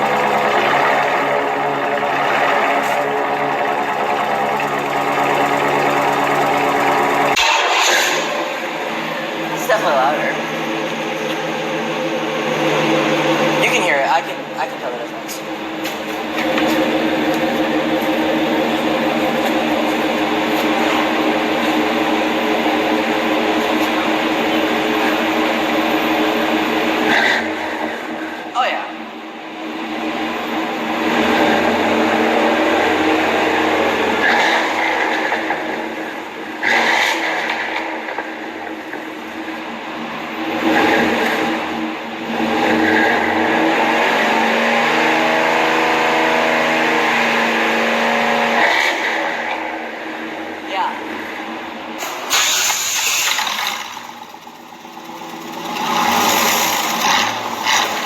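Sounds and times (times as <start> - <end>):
truck exhaust drone: 0.0 - 9.6, 53.3 - 58.0.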